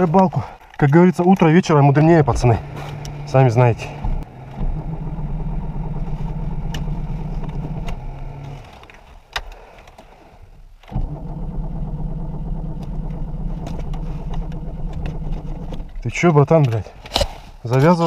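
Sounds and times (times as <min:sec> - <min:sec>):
car engine running: 0:00.5 - 0:08.9, 0:10.2 - 0:16.2.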